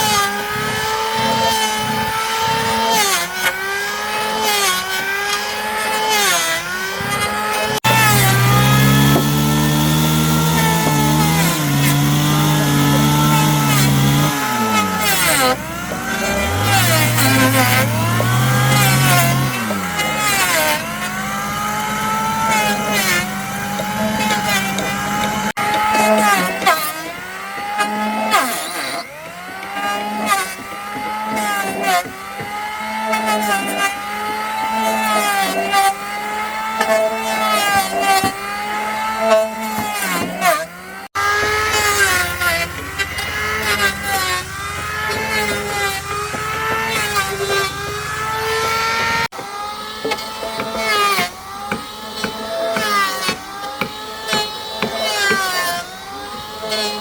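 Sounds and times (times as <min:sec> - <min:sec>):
power tool motor cutting wood: 0:00.0 - 0:57.0
sharp knocks: 0:07.0 - 0:34.5, 0:41.1 - 0:55.8.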